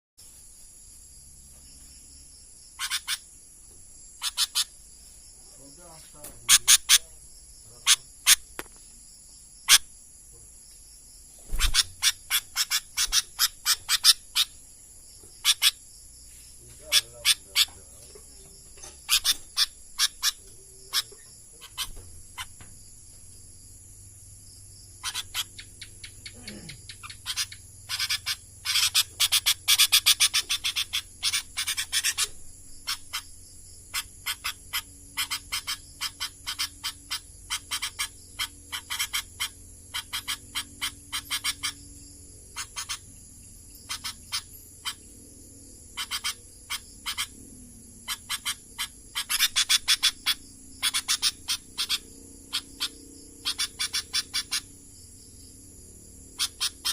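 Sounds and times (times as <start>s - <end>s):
bulbul chirping: 2.8s - 3.3s, 4.2s - 4.8s, 5.6s - 8.7s, 11.4s - 14.6s, 15.2s - 15.9s, 16.8s - 22.8s, 24.8s - 41.9s, 42.5s - 45.2s, 45.8s - 54.7s, 56.4s - 56.9s.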